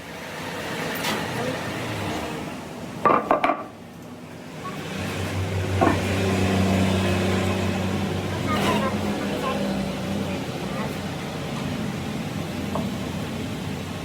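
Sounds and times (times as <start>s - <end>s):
low machine hum: 4.1s - 14.0s.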